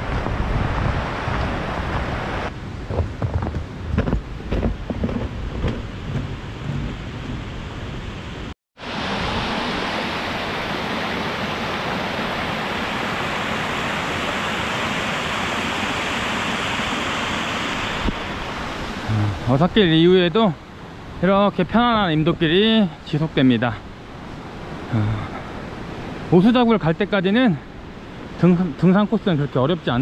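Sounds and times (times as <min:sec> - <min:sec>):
gusty noise: 0:00.0 - 0:09.7
stream water rushing: 0:00.0 - 0:30.0.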